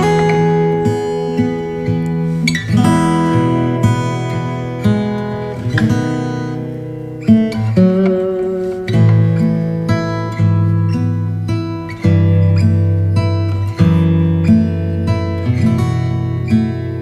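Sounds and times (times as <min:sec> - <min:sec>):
acoustic guitar chords strummed: 0:00.0 - 0:17.0.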